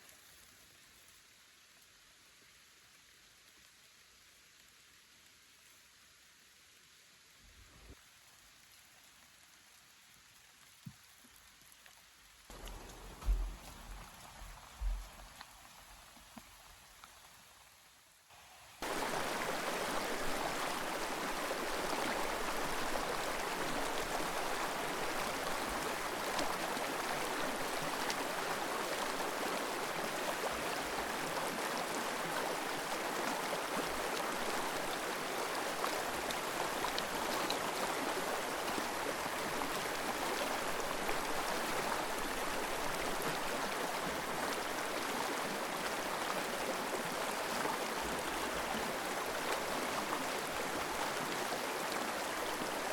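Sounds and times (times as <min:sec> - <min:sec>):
river water rushing over stones: 0:18.8 - 0:52.9.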